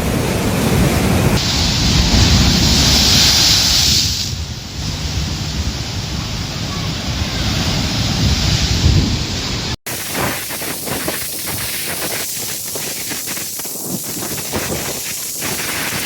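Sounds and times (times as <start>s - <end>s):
wind and driving rain: 0.0s - 16.0s
wind buffeting microphone: 0.0s - 16.0s.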